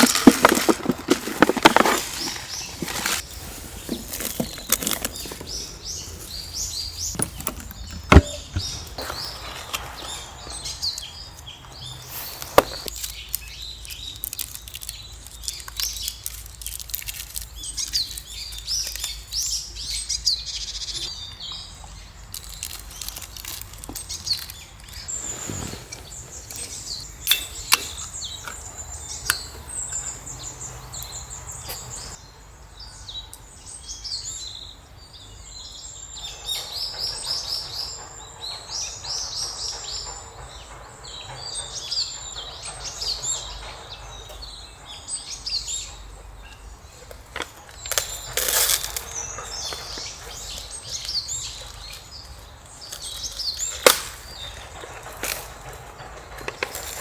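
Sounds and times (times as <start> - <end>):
small birds chirping and singing: 0.0 - 57.0
sharp clicks or knocks: 7.1 - 9.0.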